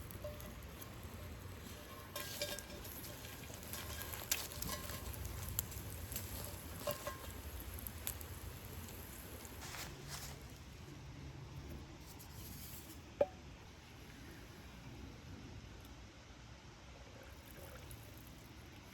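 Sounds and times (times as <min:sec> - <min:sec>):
food crackling in a skillet: 0:00.0 - 0:11.0.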